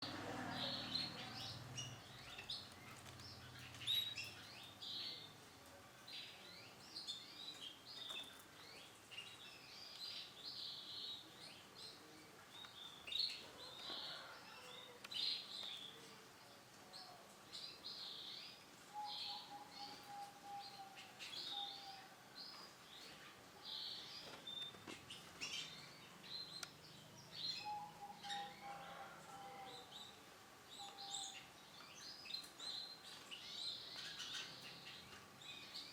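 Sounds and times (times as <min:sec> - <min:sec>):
canary chirping and trilling: 0:00.0 - 0:05.4, 0:31.2 - 0:35.9.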